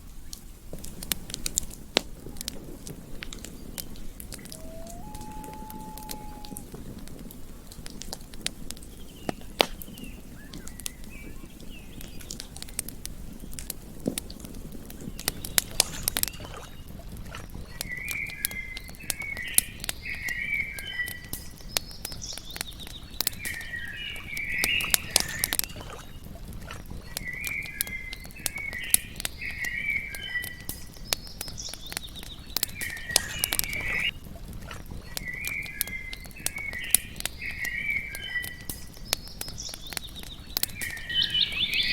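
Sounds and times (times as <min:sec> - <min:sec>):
campfire crackling and popping: 0:00.0 - 0:41.9
animal chirping call: 0:04.4 - 0:06.7.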